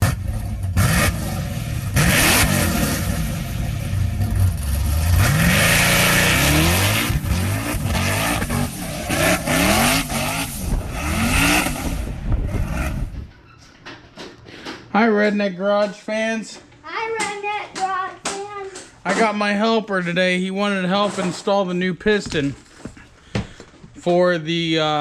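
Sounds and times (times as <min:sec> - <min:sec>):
engine revving hard: 0:00.0 - 0:13.3.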